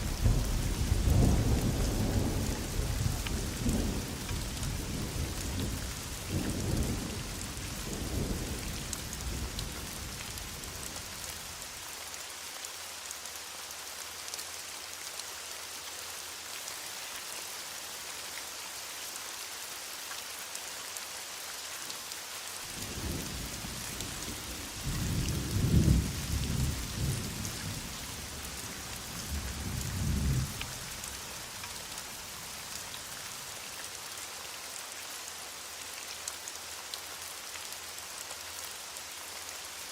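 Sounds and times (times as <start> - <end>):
rolling thunder: 0.0 - 10.1, 24.6 - 27.8
heavy rain: 0.0 - 39.9.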